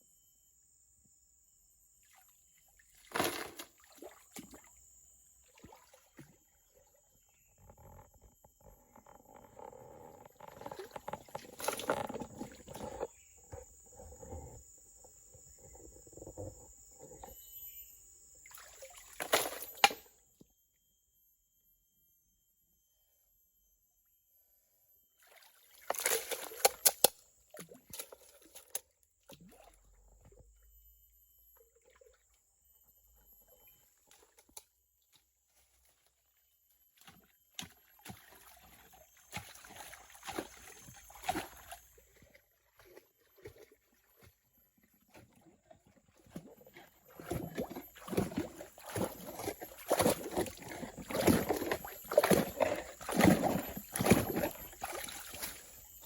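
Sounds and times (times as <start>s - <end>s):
water sloshing and splashing: 2.1s - 14.6s, 18.4s - 20.1s, 25.2s - 30.8s, 31.6s - 56.0s.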